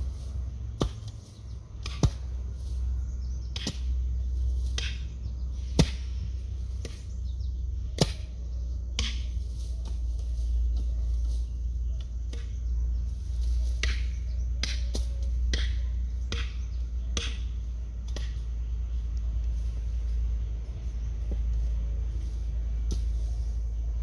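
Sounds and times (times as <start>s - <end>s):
hand tool striking: 0.0s - 2.8s, 3.5s - 7.1s, 7.8s - 12.6s, 13.3s - 18.5s
low rumble: 0.0s - 24.0s.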